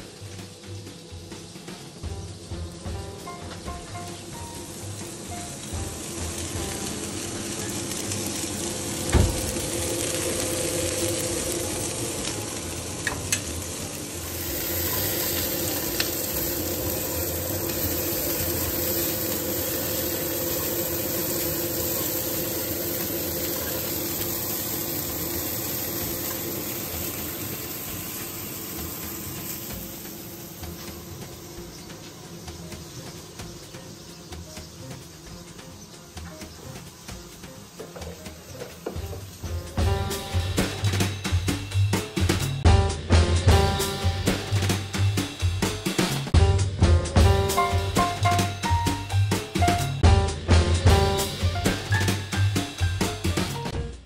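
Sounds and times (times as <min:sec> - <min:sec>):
food sizzling on a grill: 0:00.0 - 0:46.4, 0:47.2 - 0:53.8.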